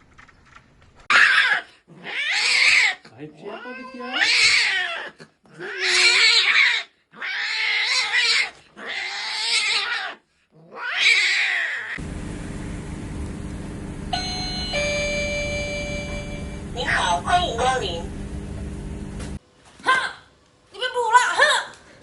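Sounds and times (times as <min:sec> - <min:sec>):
cat yowling: 0:01.1 - 0:12.0
steady low hum: 0:12.0 - 0:19.4
electronic door chime: 0:14.1 - 0:17.8.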